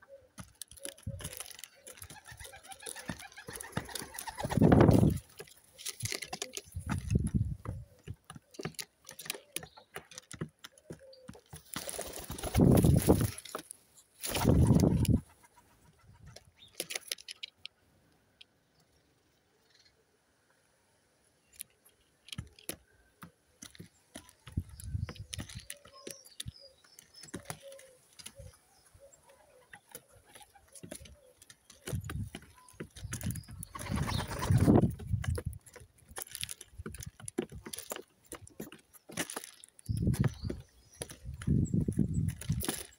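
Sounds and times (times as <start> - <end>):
pigeons cooing: 0.0 - 5.2
beaks pecking at food: 0.2 - 15.3, 21.6 - 42.9
low rushes of wings: 14.2 - 15.3, 33.7 - 34.8.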